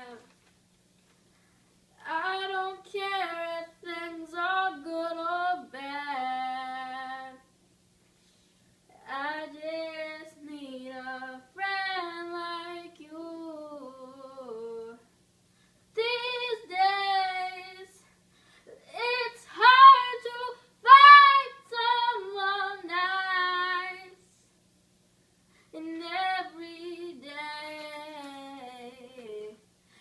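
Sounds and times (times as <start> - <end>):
faint low hum: 0.0 - 30.0
girl singing solo: 18.7 - 24.2.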